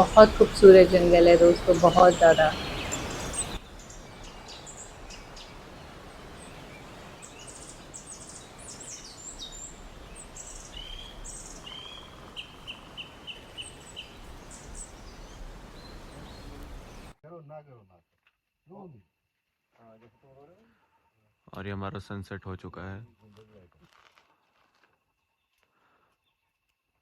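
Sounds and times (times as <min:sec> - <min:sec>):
bird short evenly spaced notes: 0:00.0 - 0:17.1
birds chirping and calling: 0:00.0 - 0:17.1
faint jungle ambience hiss: 0:00.0 - 0:17.2.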